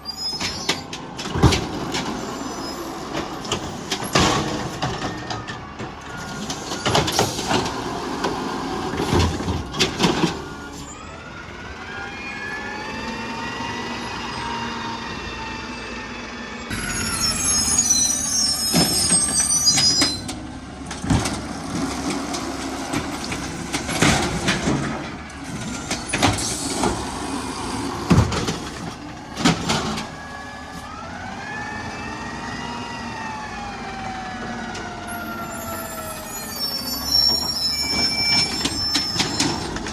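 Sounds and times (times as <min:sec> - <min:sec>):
brief high squeal: 0:00.0 - 0:00.9, 0:02.4 - 0:03.2, 0:16.7 - 0:20.3, 0:35.1 - 0:39.7
loud bangs and knocks of bins: 0:03.2 - 0:10.5, 0:18.7 - 0:27.2, 0:27.9 - 0:30.2
garbage truck engine revving: 0:16.0 - 0:36.3.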